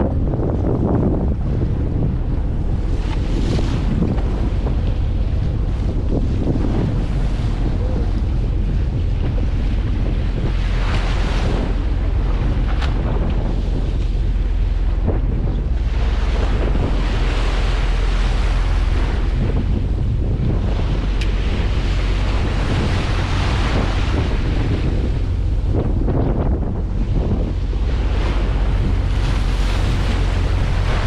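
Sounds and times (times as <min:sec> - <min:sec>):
low rumble: 0:00.0 - 0:31.0
sea wash: 0:00.0 - 0:31.0
wind buffeting microphone: 0:00.0 - 0:31.0.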